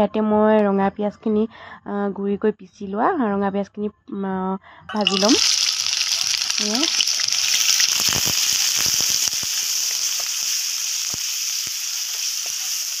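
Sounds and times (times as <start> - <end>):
onion paste sizzling in oil: 4.9 - 13.0
spoon scraping and tapping pan: 11.1 - 13.0.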